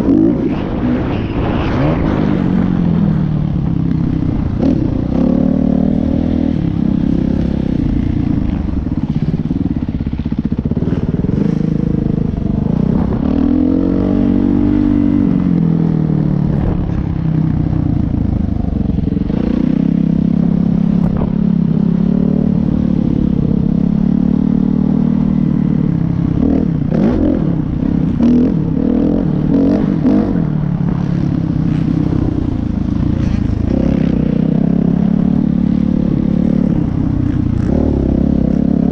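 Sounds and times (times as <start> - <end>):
dirt bike engine revving: 31.6 - 38.9.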